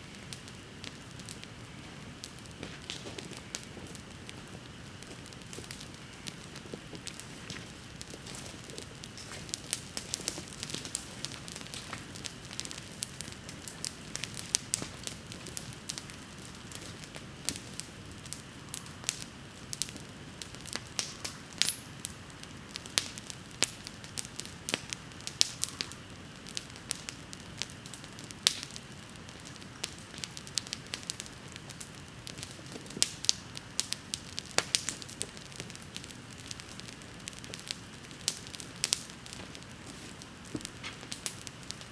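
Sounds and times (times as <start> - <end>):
low rush of flame: 0.0 - 28.6
campfire crackling and popping: 0.0 - 41.9.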